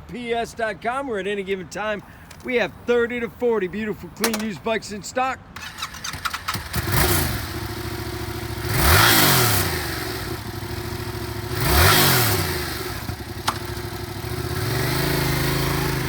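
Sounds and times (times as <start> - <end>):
motorcycle engine idling and revving: 5.6 - 16.0.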